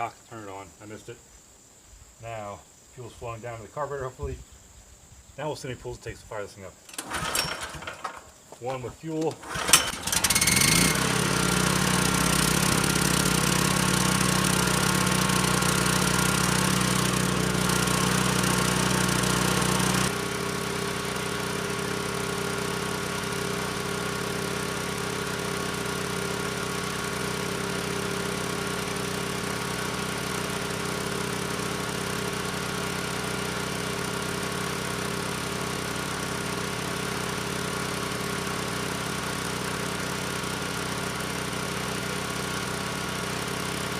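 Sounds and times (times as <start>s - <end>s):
generator recoil pull: 6.9s - 20.3s
generator engine running: 6.9s - 43.9s.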